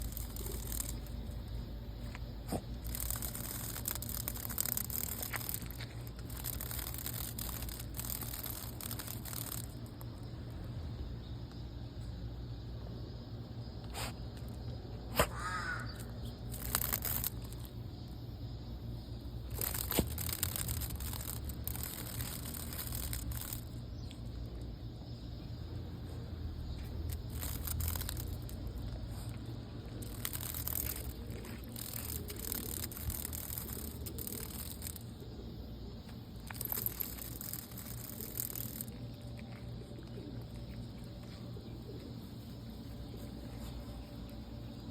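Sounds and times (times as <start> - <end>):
sharp clicks: 0.0 - 10.4, 15.2 - 17.8, 19.5 - 24.7, 26.8 - 35.2, 36.0 - 42.2
cicadas buzzing: 0.0 - 44.9.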